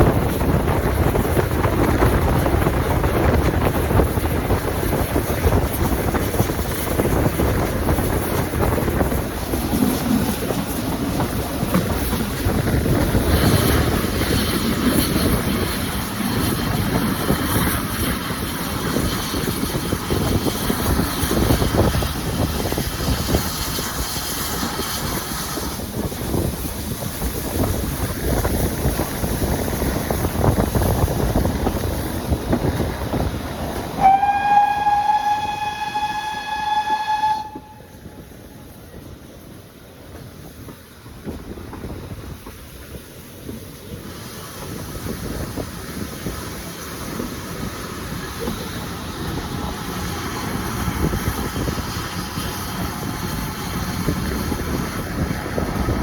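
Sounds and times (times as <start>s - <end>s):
train wheels rumbling on rail: 0.0s - 56.0s
train horn blast: 34.0s - 38.2s.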